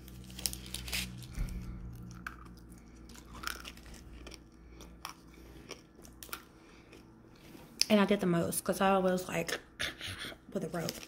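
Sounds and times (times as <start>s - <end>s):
candy crunching: 0.0s - 8.0s, 10.6s - 11.0s.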